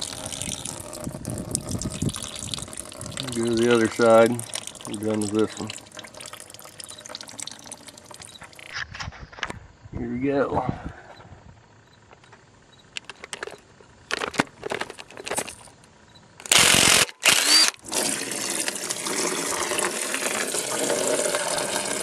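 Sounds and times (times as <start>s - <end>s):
liquid pouring into pan: 0.0s - 8.7s, 17.9s - 22.0s
liquid spurting: 0.0s - 8.7s, 16.8s - 22.0s.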